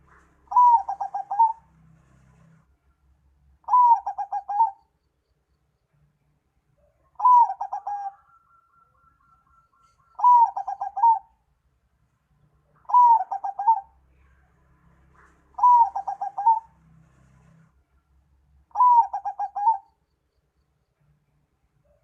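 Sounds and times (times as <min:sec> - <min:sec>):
dove-like bird call: 0:00.0 - 0:02.5, 0:03.6 - 0:05.0, 0:06.9 - 0:11.4, 0:12.8 - 0:14.3, 0:15.2 - 0:16.9, 0:18.7 - 0:20.0.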